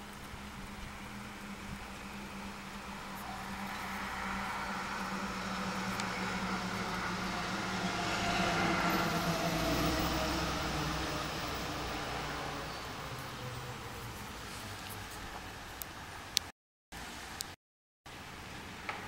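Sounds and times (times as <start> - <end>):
motor vehicle passing by: 0.0 - 15.7.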